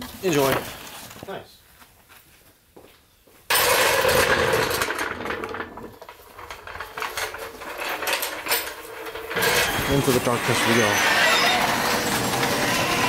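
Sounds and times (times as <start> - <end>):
motorised mechanism humming and rattling: 3.5 - 13.0.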